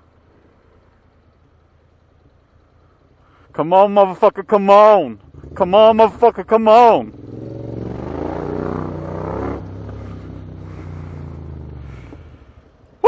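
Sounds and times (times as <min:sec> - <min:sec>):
small motorcycle engine revving: 0:05.2 - 0:12.6.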